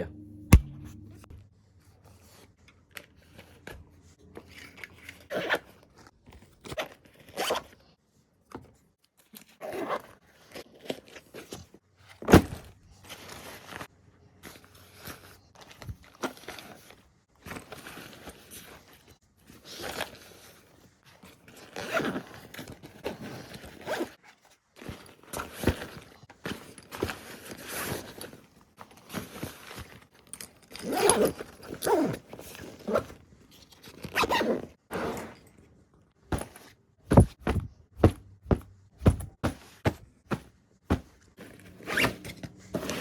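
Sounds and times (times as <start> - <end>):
zipper zipping: 30.8 - 33.2, 34.0 - 35.4, 40.9 - 43.0
bags rustling: 36.3 - 43.0.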